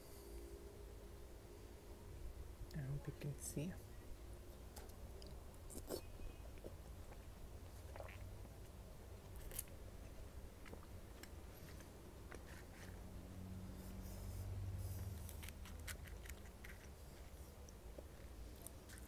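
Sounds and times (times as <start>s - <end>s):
low hum: 0.0s - 19.0s
soft chewing: 3.9s - 19.0s
crisp shell crackling: 15.1s - 17.4s.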